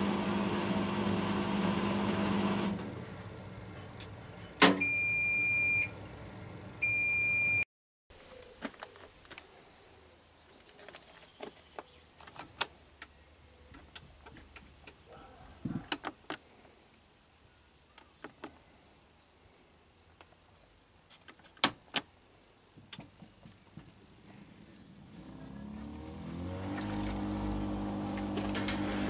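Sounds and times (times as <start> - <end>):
appliance beeping: 4.8 - 5.9.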